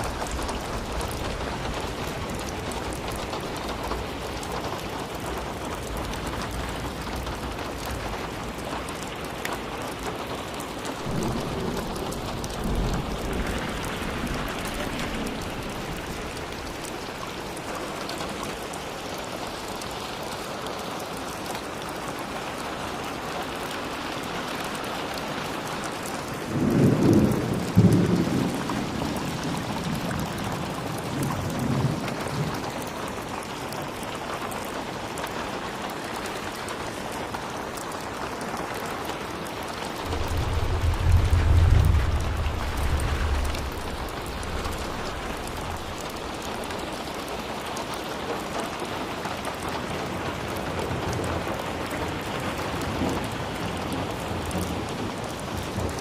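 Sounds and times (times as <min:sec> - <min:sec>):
thunder rumble: 0:00.0 - 0:04.7, 0:10.9 - 0:18.6, 0:26.4 - 0:32.8, 0:40.0 - 0:47.5
steady rain: 0:00.0 - 0:56.0.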